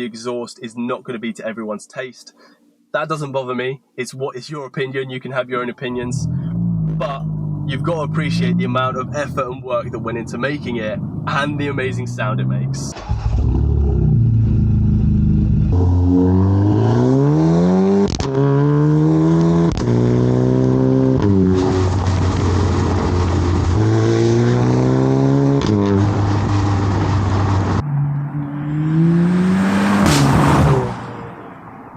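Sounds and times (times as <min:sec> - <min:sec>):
car engine accelerating: 0:06.0 - 0:31.4
exhaust cracks: 0:06.2 - 0:17.2, 0:18.0 - 0:27.8, 0:30.0 - 0:31.1.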